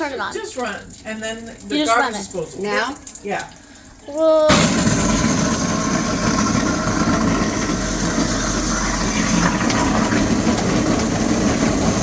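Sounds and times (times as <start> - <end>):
garbage disposal grinding ice: 4.5 - 12.0.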